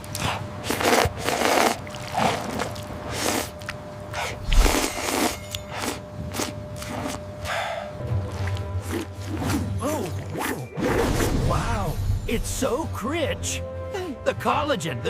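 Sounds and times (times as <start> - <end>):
noodles being slurped: 0.0 - 10.6.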